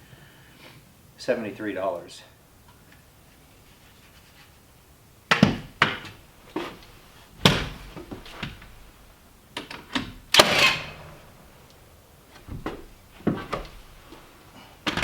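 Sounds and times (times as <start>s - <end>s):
sharp knocks and thuds: 5.3s - 6.8s, 7.4s - 8.8s, 12.3s - 13.9s.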